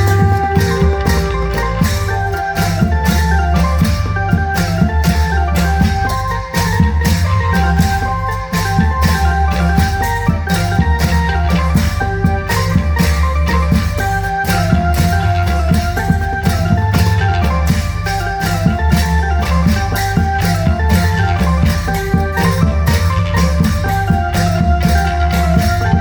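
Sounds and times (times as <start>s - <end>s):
amplified drum band music: 0.0s - 26.0s.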